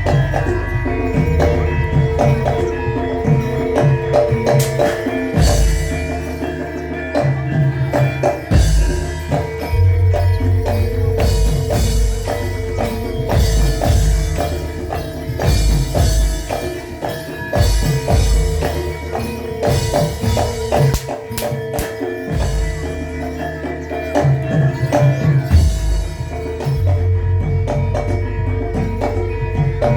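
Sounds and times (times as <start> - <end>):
held ringing tones: 0.0 - 29.9
rhythmic drumming and percussion: 0.0 - 29.9.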